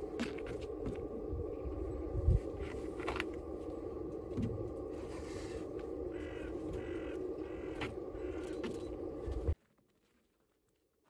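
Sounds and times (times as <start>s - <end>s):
outdoor background hum: 0.0s - 11.0s
harsh bird calls: 6.0s - 9.2s.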